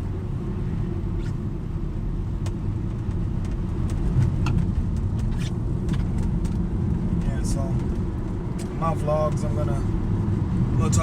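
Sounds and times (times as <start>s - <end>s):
car interior road drone: 0.0s - 11.0s.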